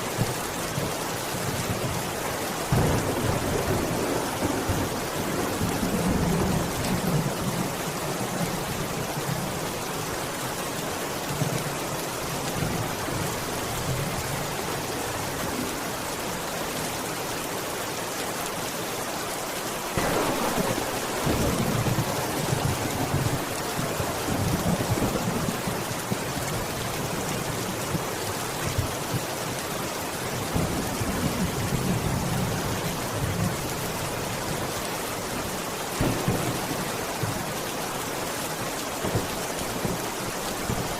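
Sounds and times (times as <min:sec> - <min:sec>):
steady rain: 0:00.0 - 0:40.9
thunder rumbling: 0:02.7 - 0:07.3, 0:20.0 - 0:25.7, 0:36.0 - 0:37.5.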